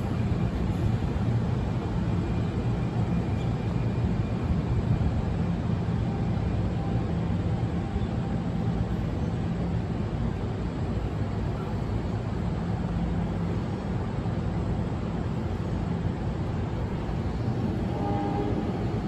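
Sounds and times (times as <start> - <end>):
train rumble and hum: 0.0 - 19.0.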